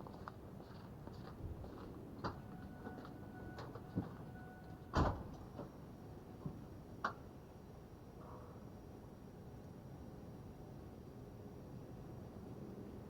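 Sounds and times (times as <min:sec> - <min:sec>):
faint high steady tone: 0:02.3 - 0:05.6.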